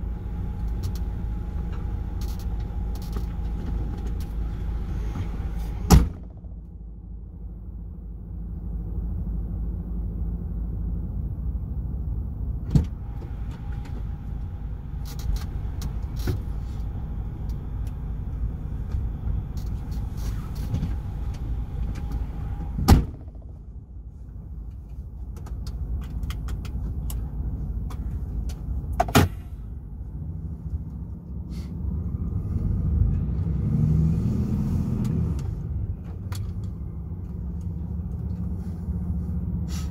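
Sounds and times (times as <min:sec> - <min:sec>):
truck diesel engine driving: 0:00.0 - 0:39.9.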